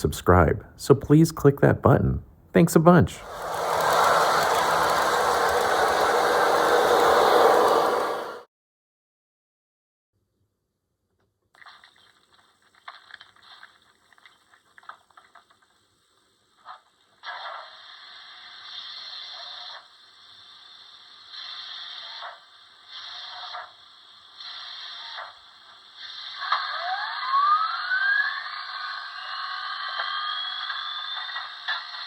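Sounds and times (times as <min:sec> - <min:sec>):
steam hiss bursts: 0:03.2 - 0:08.4
train whistle rising: 0:03.2 - 0:08.4.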